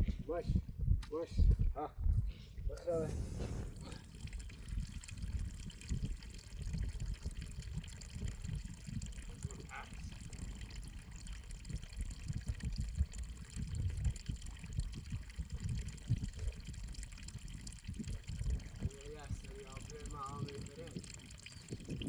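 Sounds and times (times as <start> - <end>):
low rumble: 0.0 - 20.2
water running and trickling: 2.8 - 22.0.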